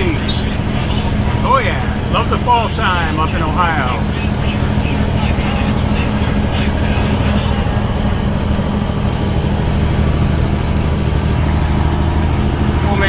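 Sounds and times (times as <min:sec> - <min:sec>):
truck diesel engine drone: 0:00.0 - 0:13.0.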